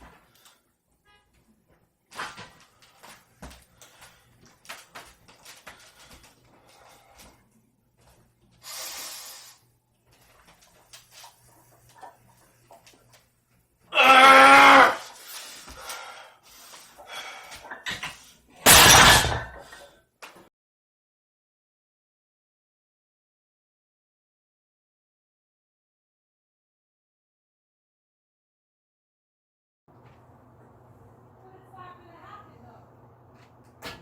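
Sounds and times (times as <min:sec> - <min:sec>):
person yelling with strain: 0:13.9 - 0:15.0.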